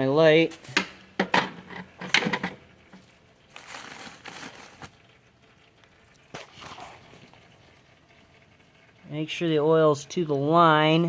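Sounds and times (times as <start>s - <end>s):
handling rustling: 3.5s - 5.0s.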